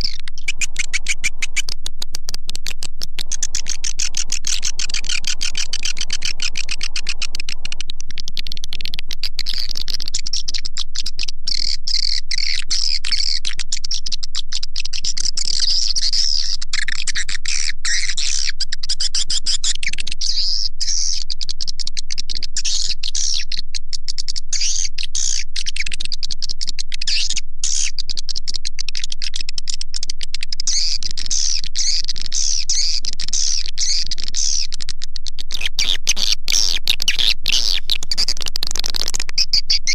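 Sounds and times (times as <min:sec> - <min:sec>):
swiftlets twittering chirps: 0:00.0 - 0:10.8, 0:35.4 - 0:39.9.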